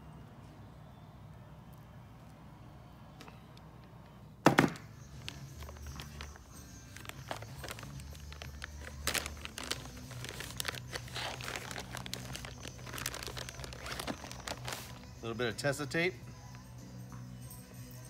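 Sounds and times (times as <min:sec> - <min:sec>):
wiring tape crinkling: 0:05.0 - 0:15.1
tape tearing: 0:07.0 - 0:15.0.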